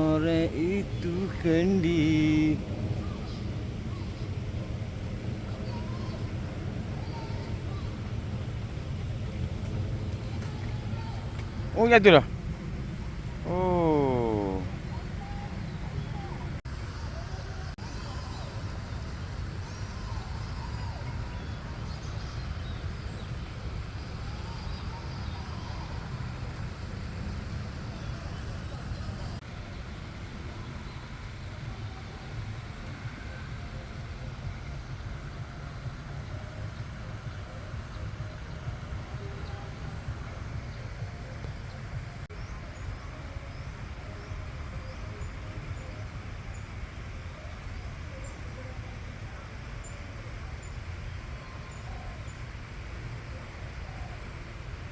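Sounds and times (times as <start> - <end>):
steady low rumble: 0.0 - 13.5.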